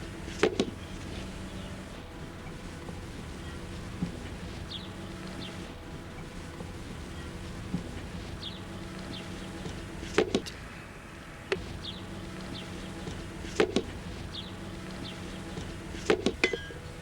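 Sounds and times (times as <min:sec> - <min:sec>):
high bird chirps: 0:11.6 - 0:17.0
tools striking wood: 0:16.0 - 0:16.8.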